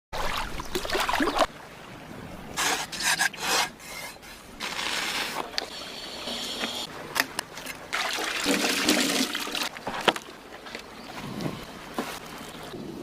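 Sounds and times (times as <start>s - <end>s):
rough rasping scrapes: 2.6s - 5.4s.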